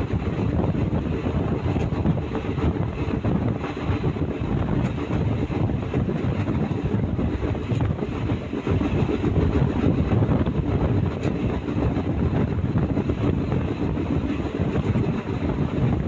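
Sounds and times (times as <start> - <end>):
train wheels rumbling on track: 0.0 - 16.0
wind buffeting microphone: 0.0 - 16.0.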